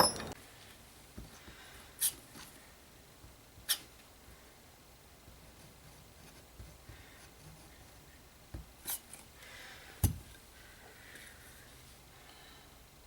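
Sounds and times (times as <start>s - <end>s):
tools knocking and clicking: 0.0s - 0.4s.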